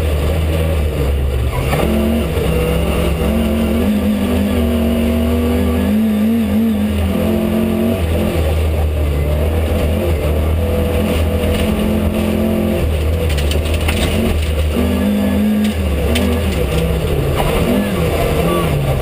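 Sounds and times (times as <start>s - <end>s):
rally car engine revving: 0.0s - 19.0s
sharp clatters: 12.9s - 14.8s.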